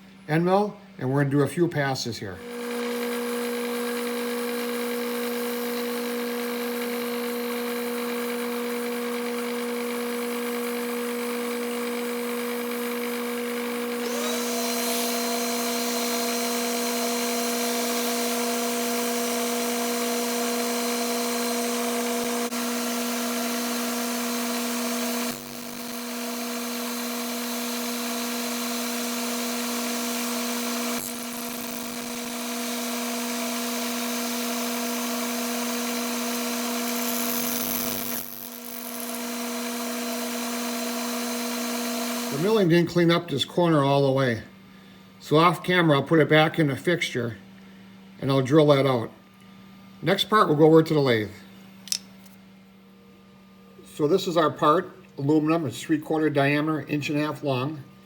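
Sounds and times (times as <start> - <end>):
milling machine motor hum: 2.4 - 42.6.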